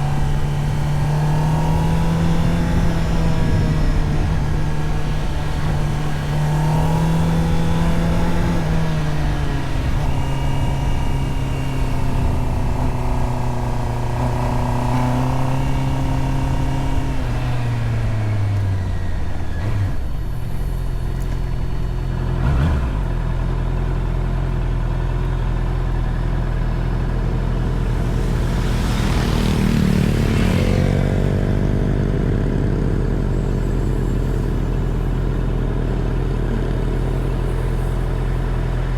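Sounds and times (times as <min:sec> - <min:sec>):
motorcycle engine running: 0:00.0 - 0:38.9
broad rush of noise: 0:27.0 - 0:38.9.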